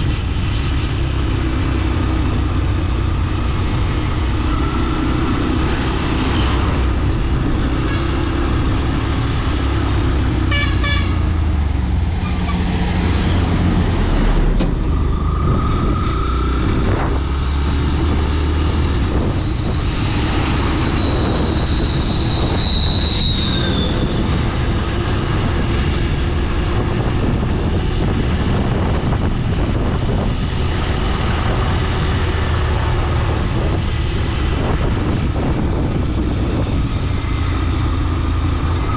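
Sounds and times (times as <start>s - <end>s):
vehicle rumbling on road: 0.0s - 38.9s
short horn toot: 10.5s - 11.3s.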